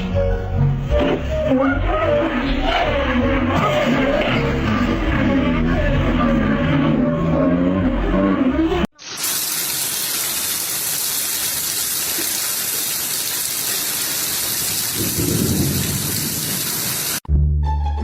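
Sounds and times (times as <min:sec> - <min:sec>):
heavy rain-like noise: 0:09.0 - 0:17.3.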